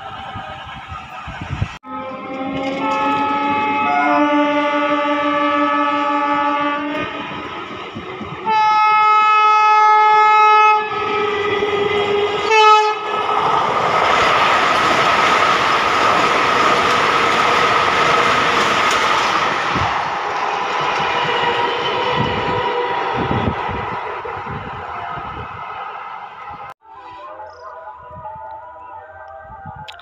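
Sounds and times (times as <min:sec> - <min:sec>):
train running past: 0:00.0 - 0:27.2
train horn: 0:01.8 - 0:13.2.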